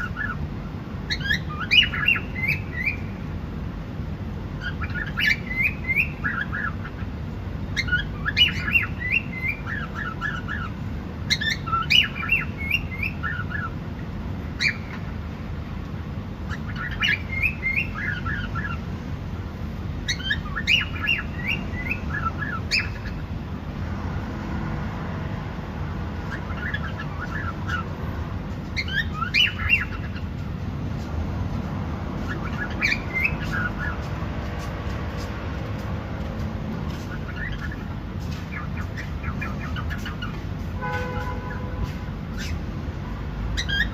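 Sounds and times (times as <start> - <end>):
cockatiel chirping: 1.1 - 3.1, 4.6 - 7.1, 7.8 - 13.7, 14.6 - 15.0, 16.5 - 18.8, 20.0 - 23.2, 26.3 - 27.9, 28.8 - 30.4, 32.2 - 34.0, 36.9 - 40.4, 42.3 - 42.6, 43.6 - 43.9.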